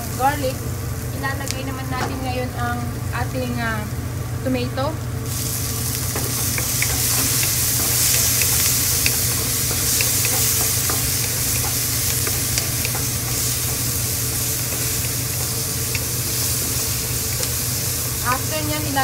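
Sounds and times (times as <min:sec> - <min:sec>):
vegetables sizzling in oil: 0:00.0 - 0:19.0
spatula clicks: 0:06.5 - 0:13.8, 0:14.7 - 0:17.6.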